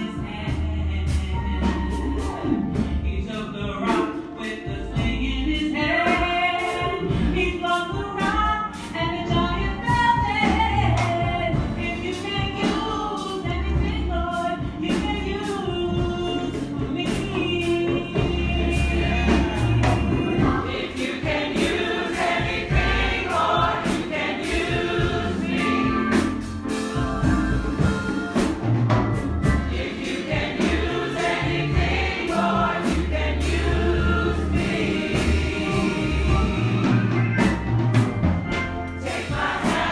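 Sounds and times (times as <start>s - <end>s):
congregation singing: 0.0s - 28.7s, 29.4s - 39.9s
band bass notes: 0.0s - 39.9s
drum strikes: 18.0s - 39.9s.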